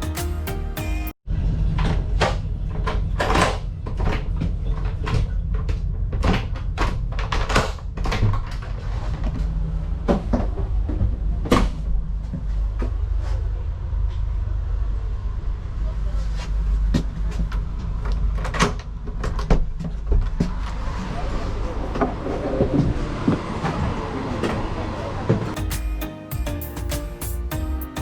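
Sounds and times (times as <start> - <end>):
background music: 0.0 - 1.2, 25.5 - 28.0.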